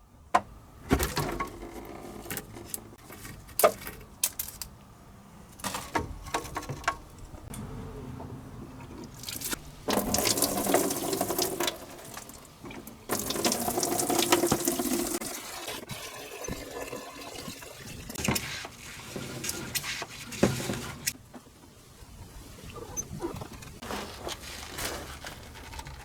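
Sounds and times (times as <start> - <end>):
fuel splashing into container: 8.8 - 18.2.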